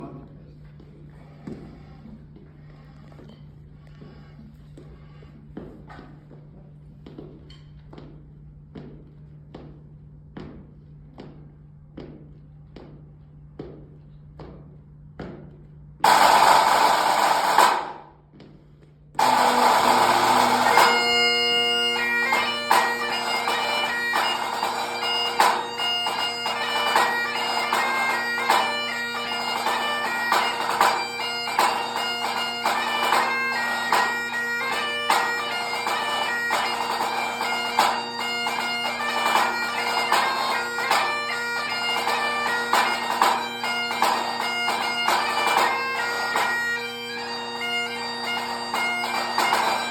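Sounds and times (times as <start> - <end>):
snare drum strokes: 16.0 - 18.1
bagpipe playing a march: 16.0 - 18.2, 19.2 - 49.9.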